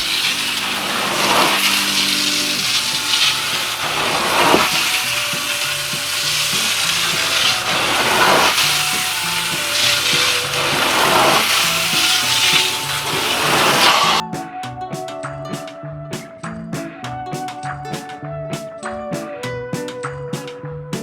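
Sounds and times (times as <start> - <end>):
extraction wand hissing on carpet: 0.0 - 14.2
background music: 0.0 - 21.0.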